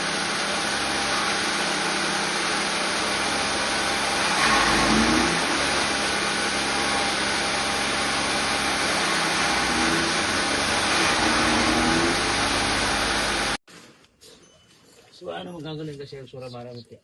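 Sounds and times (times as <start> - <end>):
chaff cutter machine running: 0.0 - 13.6.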